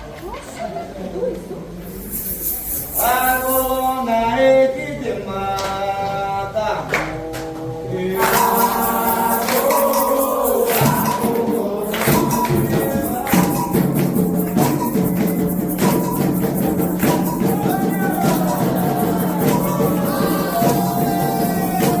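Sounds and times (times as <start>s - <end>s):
drums and rattling percussion: 1.8s - 4.1s, 8.1s - 22.0s
sung chant: 2.8s - 22.0s.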